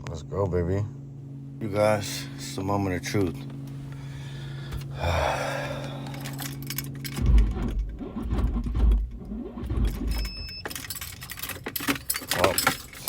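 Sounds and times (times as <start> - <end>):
steady electrical hum: 0.0 - 7.2.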